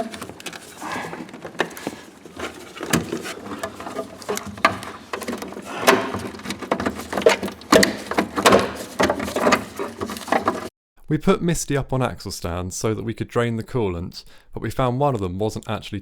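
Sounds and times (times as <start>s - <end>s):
hands clicking and rustling wiring: 0.0s - 10.7s
sharp knocks: 2.8s - 10.6s.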